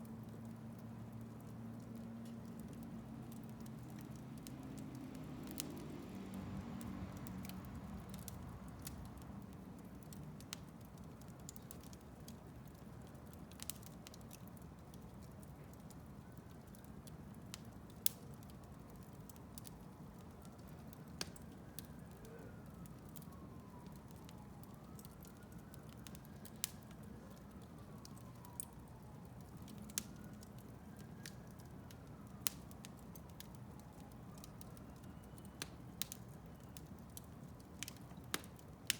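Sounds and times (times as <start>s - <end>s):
wood fire crackling: 0.0s - 38.9s
faint whistle: 34.8s - 35.6s.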